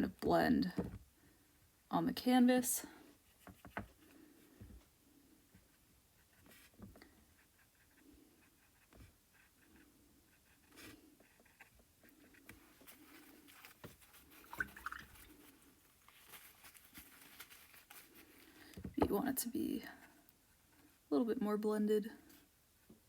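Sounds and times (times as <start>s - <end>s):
paintbrush dabbing on canvas: 12.5s - 18.1s.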